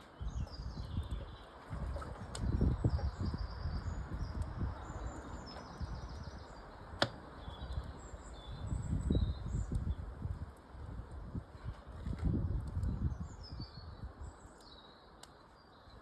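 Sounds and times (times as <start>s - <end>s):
small birds chirping: 0.0s - 10.5s, 11.6s - 16.0s
wood fire crackling pop: 4.0s - 13.3s.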